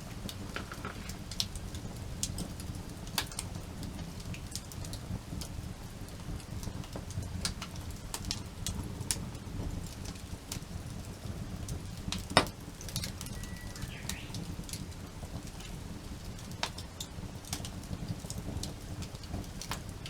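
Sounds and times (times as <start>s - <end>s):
campfire crackling and popping: 0.0s - 20.0s
low fire rumble: 0.0s - 20.0s.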